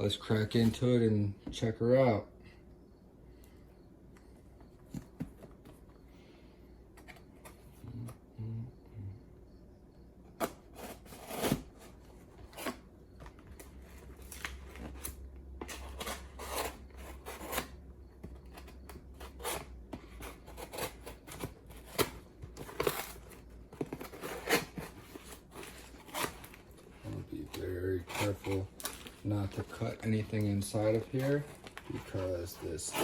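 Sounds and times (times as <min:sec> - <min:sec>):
cutting tape and cardboard: 0:10.4 - 0:12.9, 0:14.0 - 0:26.7, 0:27.4 - 0:29.7.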